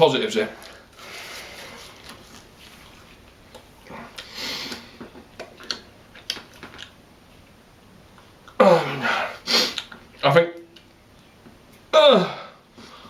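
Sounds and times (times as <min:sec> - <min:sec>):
man chewing: 0:00.6 - 0:07.0, 0:09.4 - 0:10.2.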